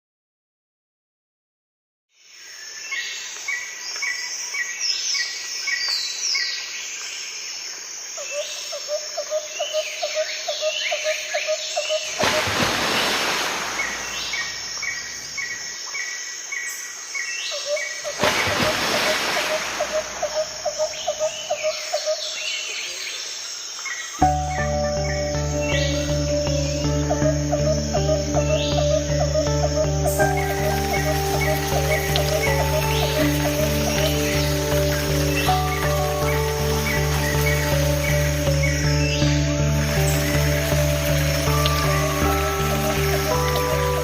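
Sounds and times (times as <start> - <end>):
birds chirping and whistling: 9.6 - 15.6, 24.2 - 44.0.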